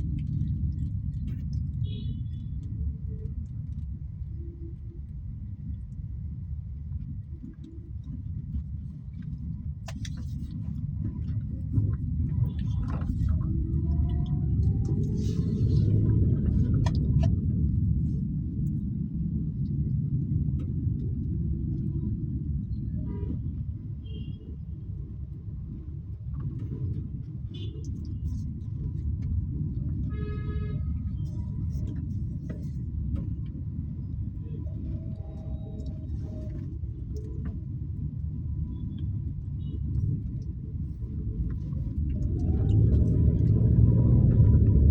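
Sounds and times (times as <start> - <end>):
car driving rumble: 0.0 - 44.9
car horn: 30.1 - 31.0.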